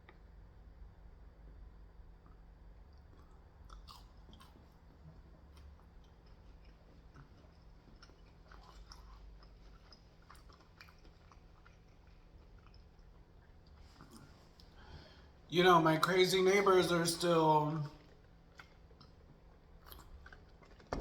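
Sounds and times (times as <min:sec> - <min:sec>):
person chewing food: 0:02.1 - 0:15.4, 0:17.9 - 0:21.0.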